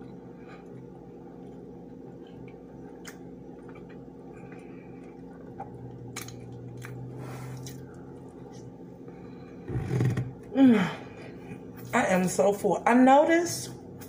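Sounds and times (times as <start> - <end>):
person chewing food: 0.0 - 8.8
low hum: 0.0 - 12.9.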